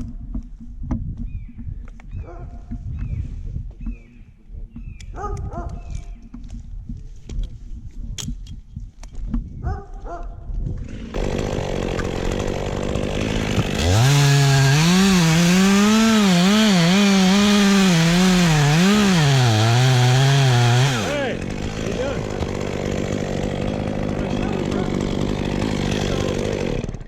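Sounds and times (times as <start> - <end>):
chainsaw cutting wood: 10.8 - 27.0.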